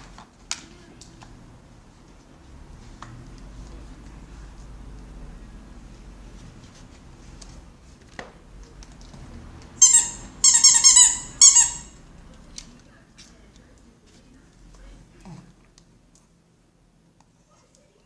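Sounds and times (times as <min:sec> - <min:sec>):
squeaky dog toy squeaks: 0:09.8 - 0:12.0.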